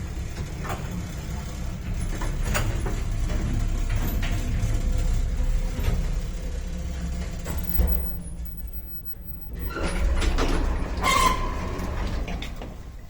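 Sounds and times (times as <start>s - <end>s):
sliding door mechanism: 0.0s - 8.8s, 9.4s - 13.0s
lift running rumble: 0.0s - 13.0s
short high squeal: 11.0s - 11.8s.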